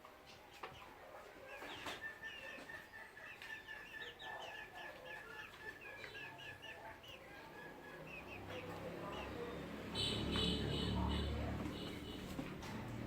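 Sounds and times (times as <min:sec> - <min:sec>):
chickens clucking and chirping: 0:00.0 - 0:13.0.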